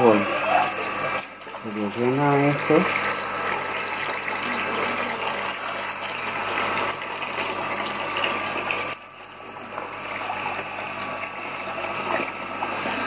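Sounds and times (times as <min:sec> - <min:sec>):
water pump humming: 0:00.0 - 0:13.0.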